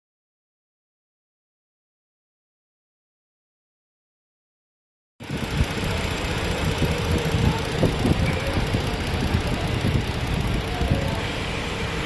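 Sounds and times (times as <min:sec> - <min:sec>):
vehicle engine rumbling: 0:05.2 - 0:12.0.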